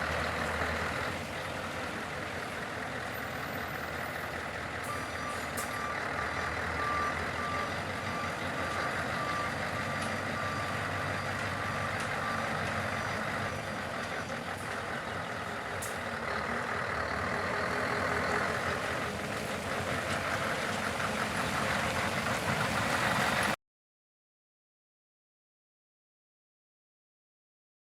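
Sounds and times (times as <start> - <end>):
truck diesel engine running: 0.0 - 23.6
reversing alarm beeping: 4.9 - 12.6.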